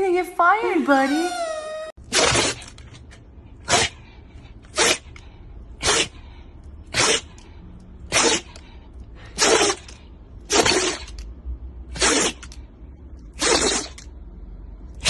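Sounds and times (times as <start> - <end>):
pet sneezing: 3.6 - 4.0, 4.7 - 5.2, 5.8 - 7.4, 8.1 - 8.6, 9.2 - 11.2, 11.9 - 12.6, 13.4 - 14.0.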